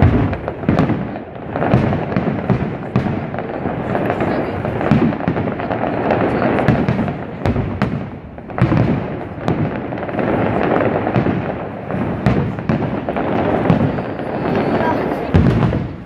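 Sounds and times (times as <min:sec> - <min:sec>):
fireworks cracking: 0:00.0 - 0:16.0
rumble of fireworks booms: 0:00.0 - 0:16.0.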